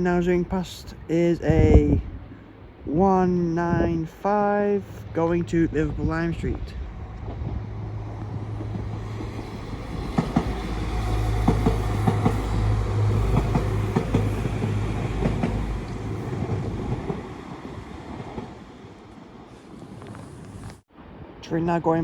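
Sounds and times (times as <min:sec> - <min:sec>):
train engine drone: 0:03.4 - 0:20.8
train wheels clattering over rail joints: 0:08.2 - 0:17.3.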